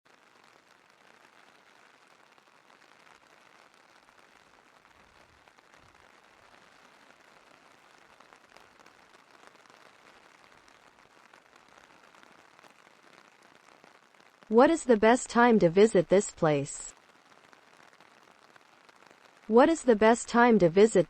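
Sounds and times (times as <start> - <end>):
faint steady rain: 0.0 - 21.0.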